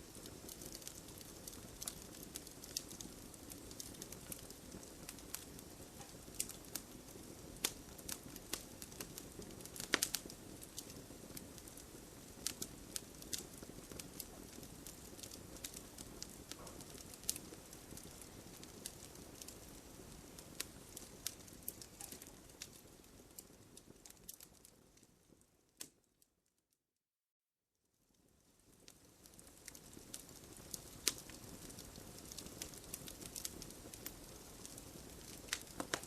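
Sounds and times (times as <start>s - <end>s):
hiss of burning: 0.0s - 24.8s, 28.6s - 36.0s
campfire crackling and popping: 0.0s - 26.1s, 28.6s - 36.0s.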